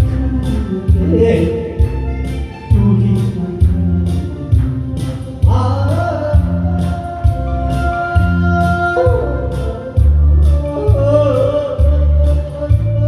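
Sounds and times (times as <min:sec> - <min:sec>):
backing track with bass beat: 0:00.0 - 0:13.0
person singing long wavering notes: 0:05.5 - 0:13.0.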